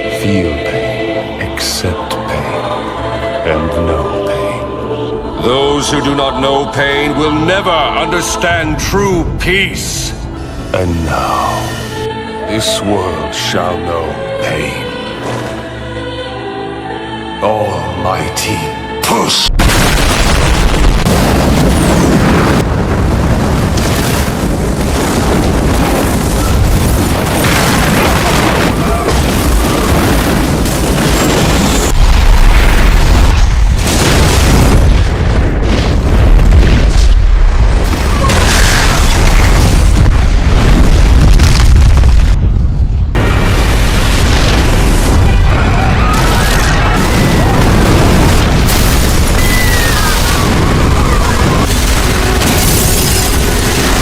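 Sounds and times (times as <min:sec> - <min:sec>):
music: 0:00.0 - 0:19.7
explosion blast and rumble: 0:19.5 - 0:54.0.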